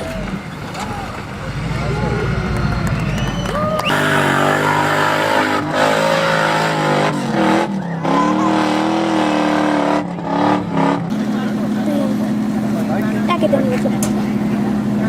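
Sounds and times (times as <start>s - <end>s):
truck engine revving hard: 0.0s - 15.0s.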